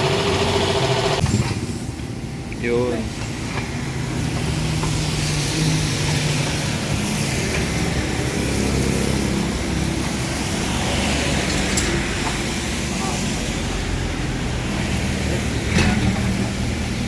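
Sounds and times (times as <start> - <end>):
vehicle engine running: 0.0 - 2.5
traffic hiss: 1.6 - 17.0.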